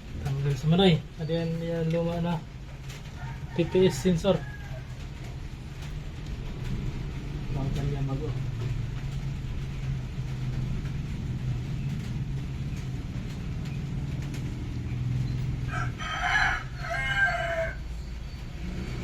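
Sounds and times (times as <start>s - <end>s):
rooster crowing: 3.2s - 5.2s, 15.6s - 18.1s.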